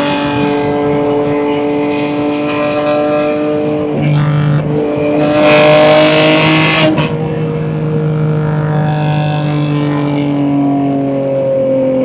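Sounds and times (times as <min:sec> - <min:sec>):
car engine cruising: 0:00.0 - 0:12.0.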